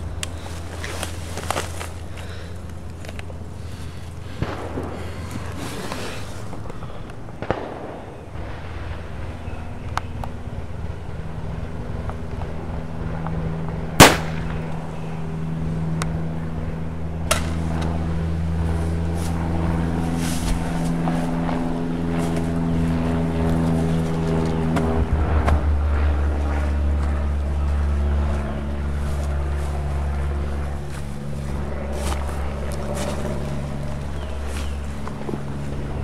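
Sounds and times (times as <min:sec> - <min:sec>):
low drone of held tones: 0:00.0 - 0:36.0
rifle shot: 0:07.4 - 0:08.3, 0:14.0 - 0:14.7.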